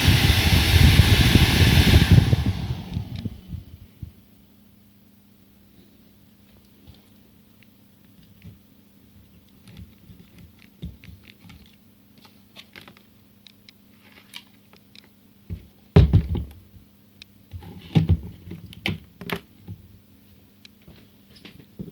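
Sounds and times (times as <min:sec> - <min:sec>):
faint steady hum: 0:00.0 - 0:21.9
knocks and clattering of handling: 0:14.0 - 0:16.7, 0:17.5 - 0:20.0, 0:20.8 - 0:21.9.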